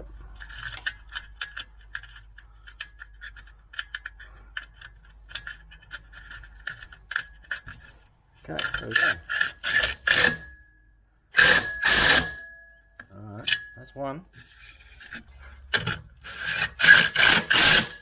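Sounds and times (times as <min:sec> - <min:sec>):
wrench clicking on metal nuts: 0:08.6 - 0:10.5, 0:11.4 - 0:12.4, 0:15.7 - 0:18.0.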